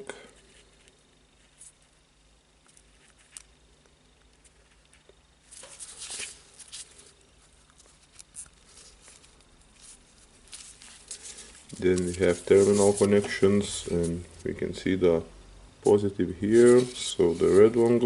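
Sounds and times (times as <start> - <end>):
scratchy rustle: 4.4 - 14.4, 16.4 - 18.0.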